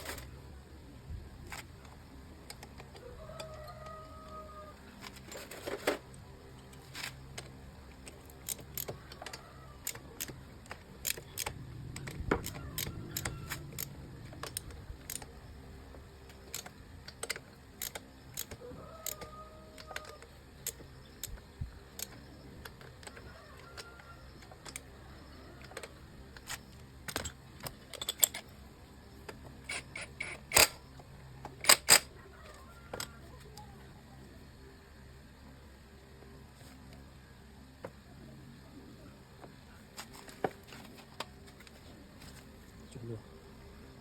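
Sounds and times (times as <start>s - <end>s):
metal parts and tools clinking: 5.1s - 15.4s, 25.6s - 28.5s, 29.6s - 30.9s, 31.6s - 32.1s.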